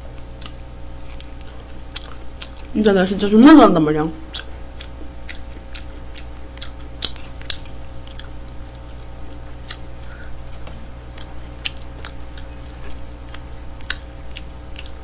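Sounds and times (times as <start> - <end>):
chewing with mouth clicks: 0.2 - 3.0, 4.2 - 15.0.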